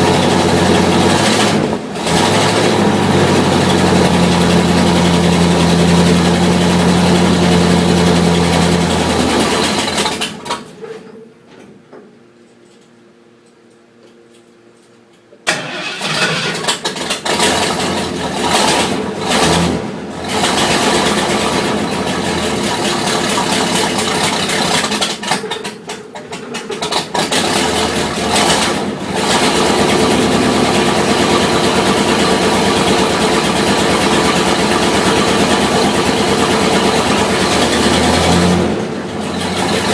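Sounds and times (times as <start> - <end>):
truck engine cold-starting: 0.0 - 10.7, 15.5 - 25.8, 26.5 - 39.9.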